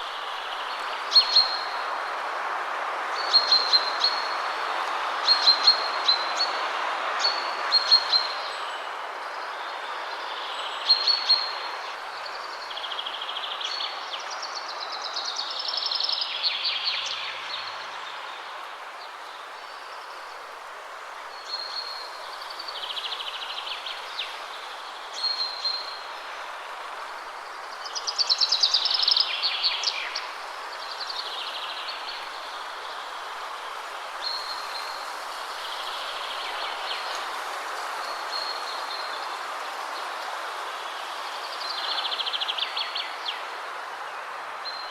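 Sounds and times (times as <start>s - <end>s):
wind rushing through trees: 0.0s - 44.9s
songbirds singing: 21.2s - 44.9s.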